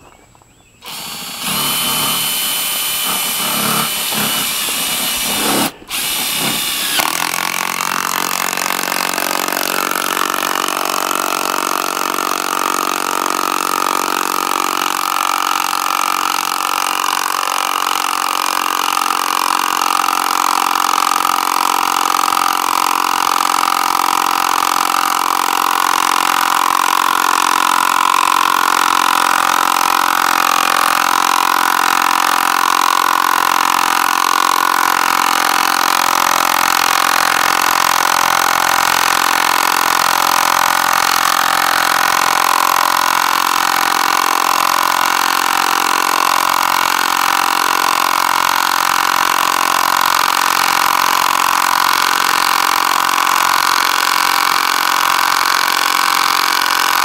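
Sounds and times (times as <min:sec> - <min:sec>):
short bursts of tool noise: 0:00.8 - 0:14.1
power tool motor running: 0:00.8 - 0:57.0.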